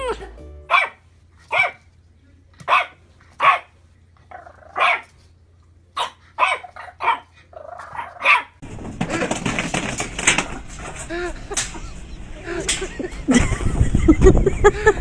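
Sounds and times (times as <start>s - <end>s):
dog barking: 0.7s - 1.8s, 2.6s - 3.7s, 4.6s - 5.1s, 6.0s - 7.3s, 7.9s - 8.6s.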